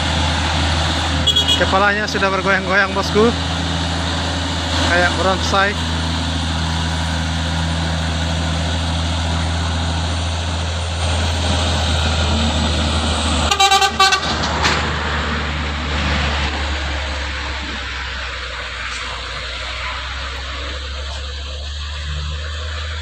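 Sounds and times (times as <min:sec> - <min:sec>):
truck engine under load: 0:00.0 - 0:23.0
vehicle horn tooting: 0:01.2 - 0:01.8, 0:13.5 - 0:14.4.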